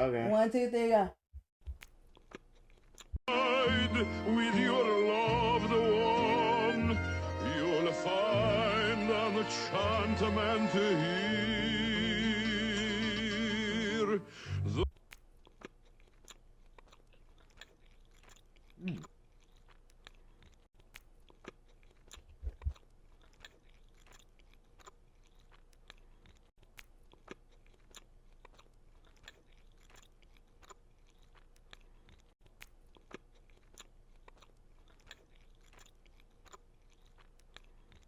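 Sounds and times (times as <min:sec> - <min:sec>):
chewing with wet mouth clicks: 0:01.6 - 0:03.2, 0:14.8 - 0:38.0.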